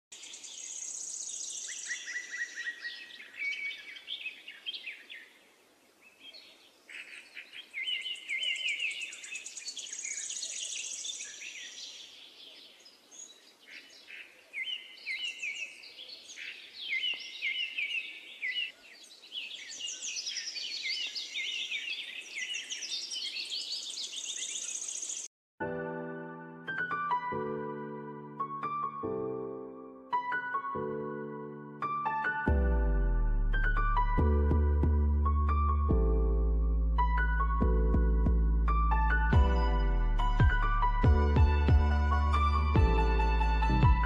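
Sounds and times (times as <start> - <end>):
songbirds singing and trilling: 0.2 - 25.3.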